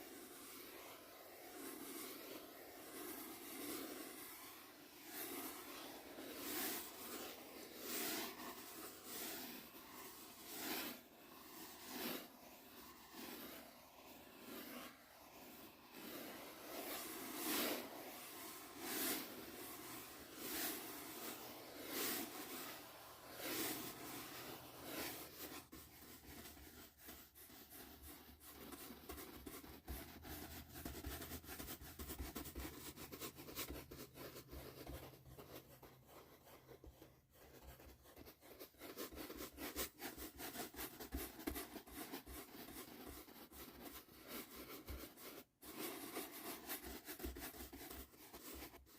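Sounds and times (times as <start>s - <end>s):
brush strokes sweeping: 0.0s - 48.9s.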